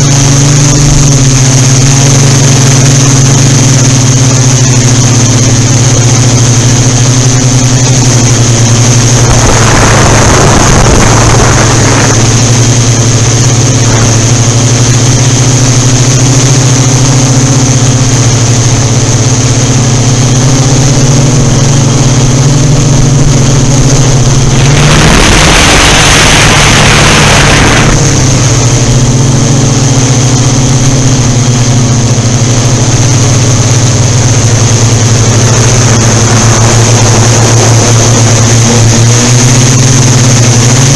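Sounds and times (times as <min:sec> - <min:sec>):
drone motors humming and whining: 0:00.0 - 0:40.9
wind buffeting microphone: 0:08.2 - 0:15.0, 0:21.4 - 0:29.9.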